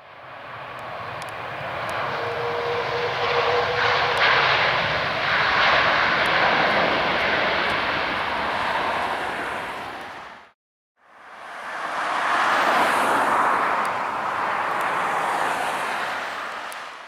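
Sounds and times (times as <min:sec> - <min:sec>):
airliner engines passing by: 0:00.0 - 0:17.0.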